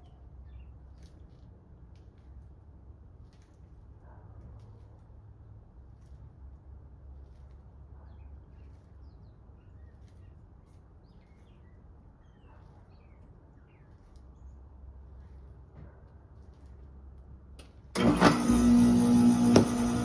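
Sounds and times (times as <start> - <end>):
heat pump humming: 17.9 - 20.0.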